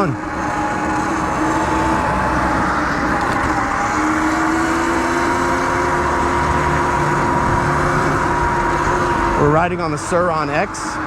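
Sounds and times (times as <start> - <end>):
electric motor whine: 0.0 - 11.0
wind and road noise: 0.0 - 11.0.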